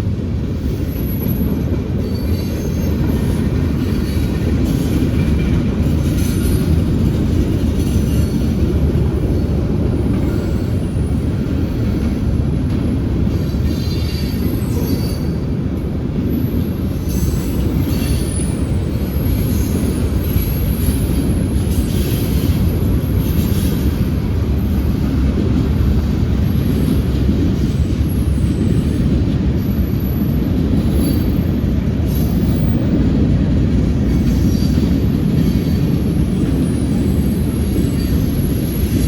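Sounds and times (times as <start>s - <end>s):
freight train rumbling past: 0.0s - 39.0s
high wheel squeal: 0.7s - 4.9s, 13.4s - 15.5s.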